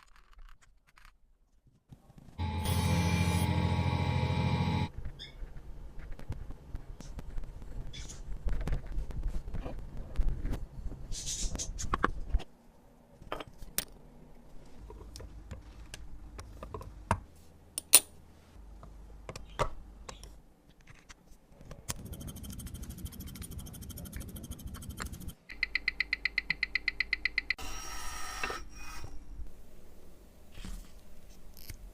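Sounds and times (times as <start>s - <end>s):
watch tools clicking and scraping: 21.9s - 25.4s
fine rapid ticking: 21.9s - 27.4s.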